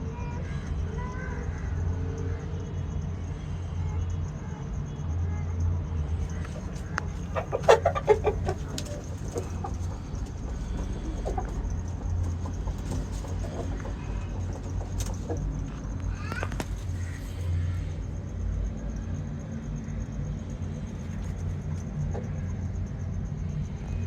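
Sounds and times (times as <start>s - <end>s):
steady low hum: 0.0s - 24.0s
rooster clucking: 6.3s - 18.0s.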